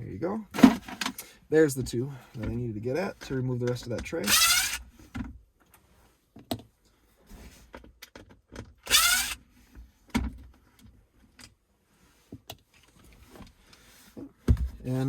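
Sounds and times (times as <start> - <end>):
cordless drill whining: 4.2 - 4.9, 8.8 - 9.5.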